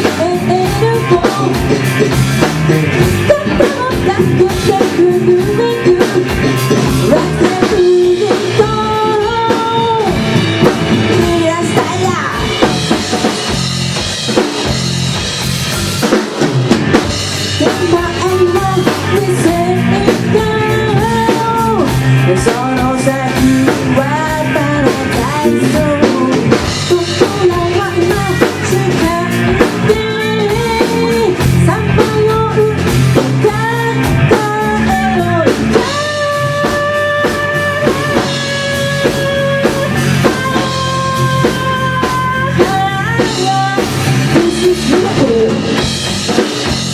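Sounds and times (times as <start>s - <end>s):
rock band playing live: 0.0s - 46.9s.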